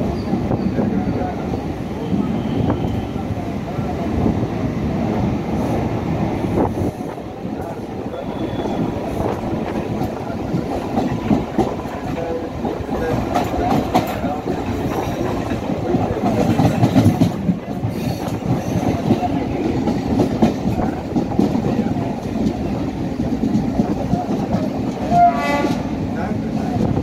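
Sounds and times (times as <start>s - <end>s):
train rumbling on rails: 0.0s - 27.0s
wheels clacking over rail joints: 7.6s - 25.9s.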